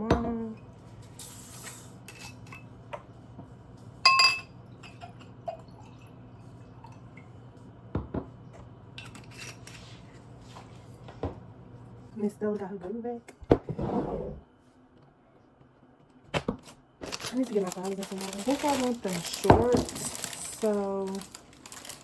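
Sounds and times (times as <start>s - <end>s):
loud ringing glass clink: 4.1s - 4.5s
glassware and dishes clinking: 4.1s - 5.6s.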